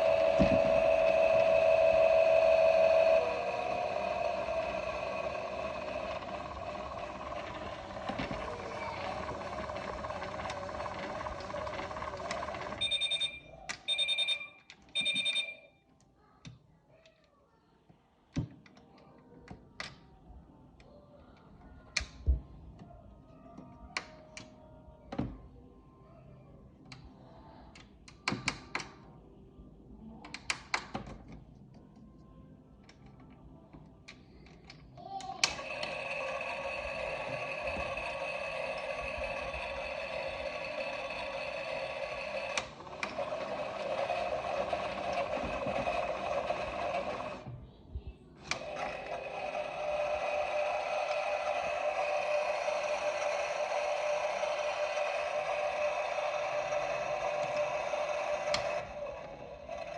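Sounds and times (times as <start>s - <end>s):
toy washing machine running: 0.0s - 15.6s, 35.0s - 47.6s, 48.4s - 59.9s
short beeps: 12.8s - 15.8s.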